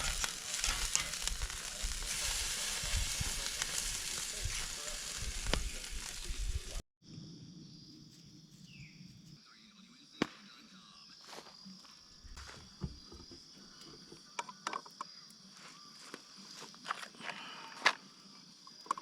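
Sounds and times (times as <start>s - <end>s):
crickets chirping: 0.0s - 19.0s
camp gear clicks and knocks: 12.4s - 15.2s, 16.1s - 19.0s.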